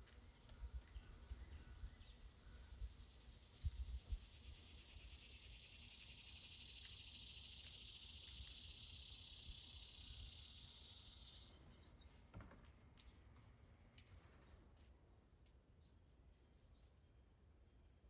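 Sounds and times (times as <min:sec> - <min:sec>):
high-pitched hiss: 0:01.5 - 0:11.6.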